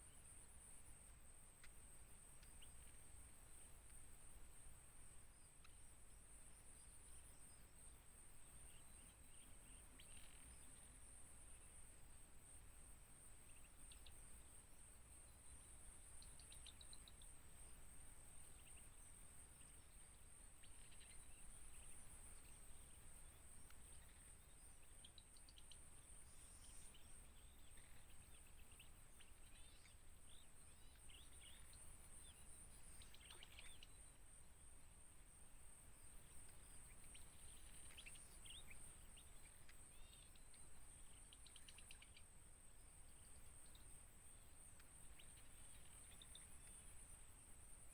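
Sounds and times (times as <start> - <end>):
faint bird chirps: 1.5 - 4.1, 5.2 - 34.7, 35.4 - 47.9.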